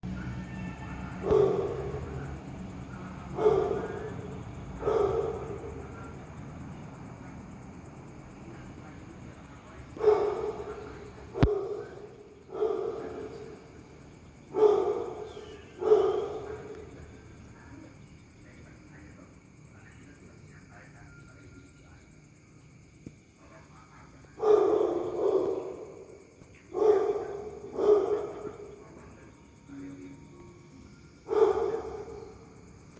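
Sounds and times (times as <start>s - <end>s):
crickets chirping: 0.0s - 32.9s
gecko calling: 0.1s - 7.4s, 8.2s - 18.2s.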